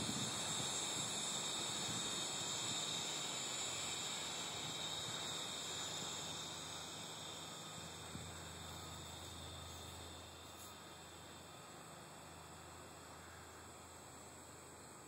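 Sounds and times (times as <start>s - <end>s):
high-pitched droning hiss: 0.0s - 15.0s.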